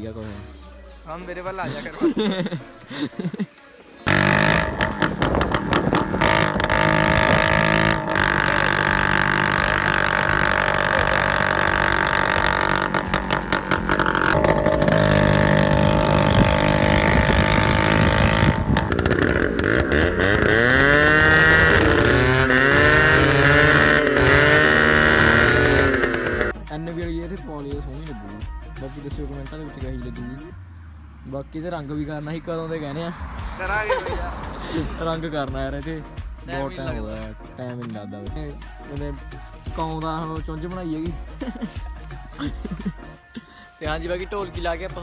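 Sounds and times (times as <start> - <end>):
scooter engine revving: 4.0 - 26.6, 29.2 - 37.4.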